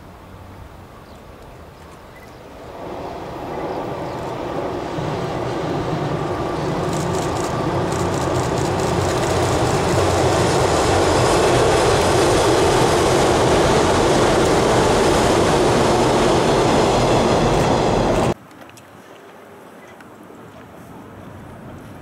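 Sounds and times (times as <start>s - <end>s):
train wheels rumbling on bridge: 2.6s - 18.4s.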